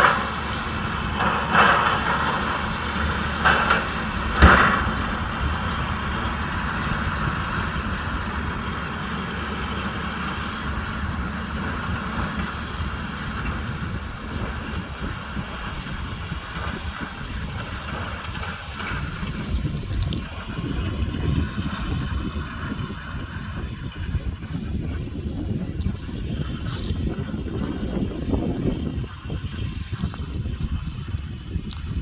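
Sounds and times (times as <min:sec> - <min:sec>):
loud clatters: 0:00.0 - 0:21.4
baler mechanical drone: 0:00.0 - 0:32.0
tractor engine running: 0:00.0 - 0:32.0.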